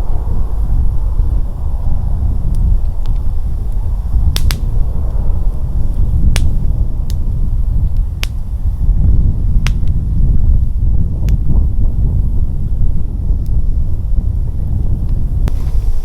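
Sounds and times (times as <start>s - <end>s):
wind rumble on microphone: 0.0s - 16.0s
wood fire crackling: 0.0s - 16.0s
fire pops and snaps: 2.4s - 11.8s, 13.2s - 13.7s, 14.7s - 16.0s.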